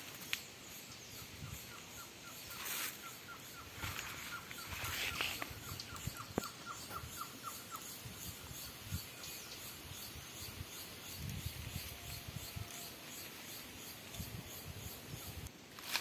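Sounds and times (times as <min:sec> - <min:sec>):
footsteps crunching dry leaves: 0:15.7 - 0:16.0.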